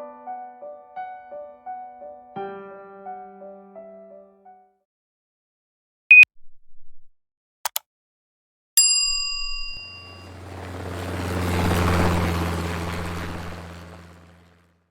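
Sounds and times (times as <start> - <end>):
bell-like ding: 8.8 - 10.3
short high beep: 9.1 - 10.3.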